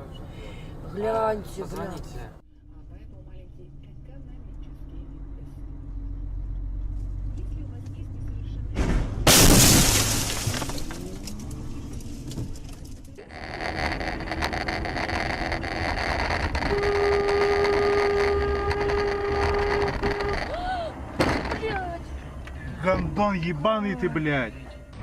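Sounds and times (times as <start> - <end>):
car crash: 8.7 - 16.9, 18.8 - 21.9
glass breaking: 9.3 - 11.4.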